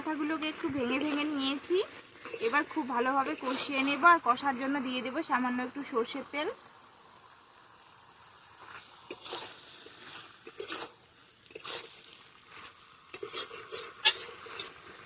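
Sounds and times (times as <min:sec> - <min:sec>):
spatula scraping a pan: 0:00.7 - 0:04.2, 0:08.6 - 0:15.0.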